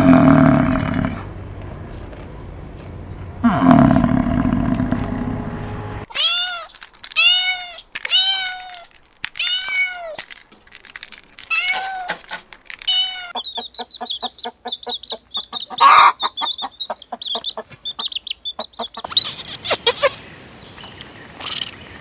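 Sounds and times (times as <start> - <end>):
cow mooing: 0.0 - 2.2, 3.0 - 6.0.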